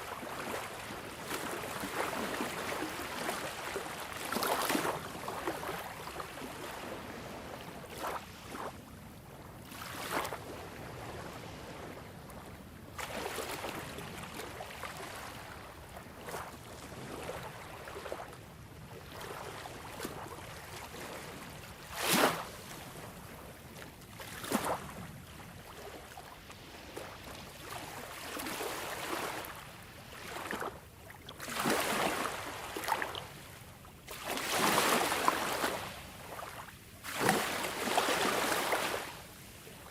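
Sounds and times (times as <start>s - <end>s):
water splashes: 37.0s - 39.1s.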